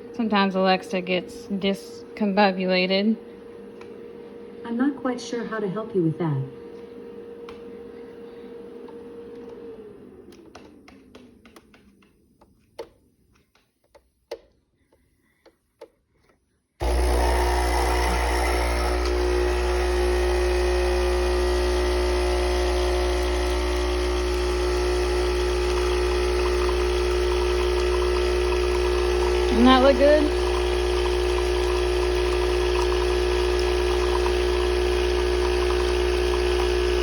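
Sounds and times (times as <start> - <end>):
espresso machine pump humming: 16.8 - 37.0.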